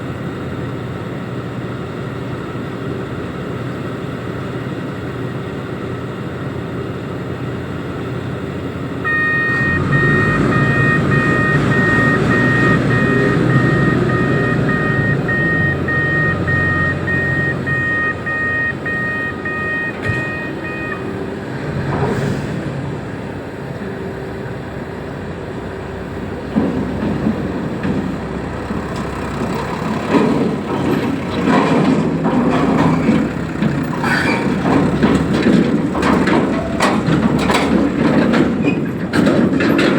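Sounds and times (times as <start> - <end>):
diesel engine running under load: 0.0 - 39.9
reversing alarm beeping: 9.0 - 21.2
heavy metal clanks and knocks: 9.1 - 21.0, 26.4 - 39.9.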